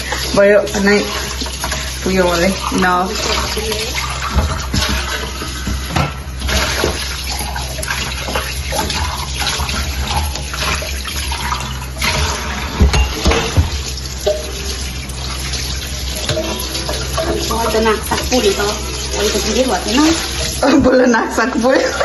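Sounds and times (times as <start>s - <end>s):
tap water running into sink: 0.0s - 22.0s
dishes knocking and clattering: 3.2s - 15.0s, 16.1s - 21.2s.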